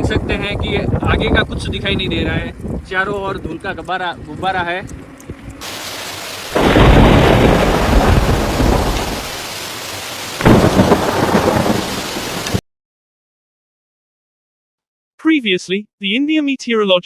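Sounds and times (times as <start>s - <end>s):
strong wind buffeting microphone: 0.0s - 9.4s.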